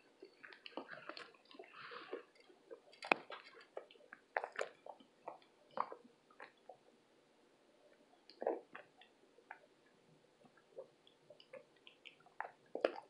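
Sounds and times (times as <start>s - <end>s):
crunchy chewing: 0.2s - 6.7s.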